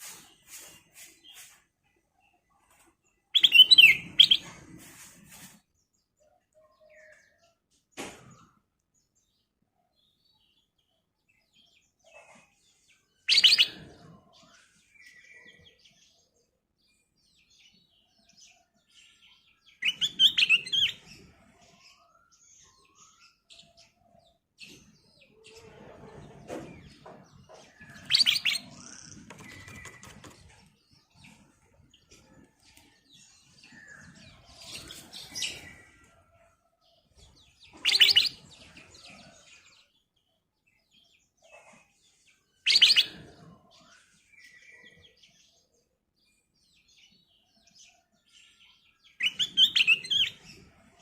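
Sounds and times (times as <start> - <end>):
soft bird chirps and calls: 0.0 - 51.0
bird song bursts: 3.3 - 4.5, 13.2 - 15.9, 19.0 - 21.1, 21.8 - 36.1, 37.1 - 40.2, 42.5 - 45.2, 48.3 - 50.7.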